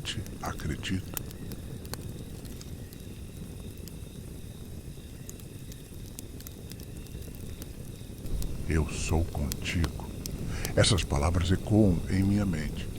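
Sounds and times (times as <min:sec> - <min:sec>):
campfire crackling: 0:00.0 - 0:12.9
low rumble: 0:08.2 - 0:12.9.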